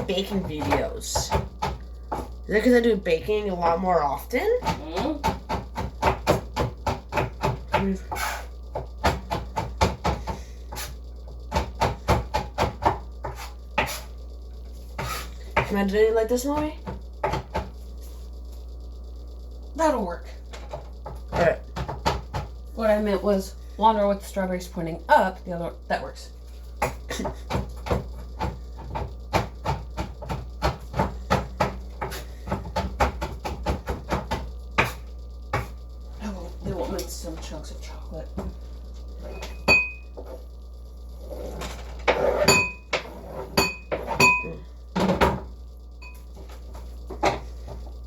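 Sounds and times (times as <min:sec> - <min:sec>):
knife chopping on wooden board: 0:04.6 - 0:10.9, 0:11.5 - 0:14.1, 0:26.8 - 0:35.8.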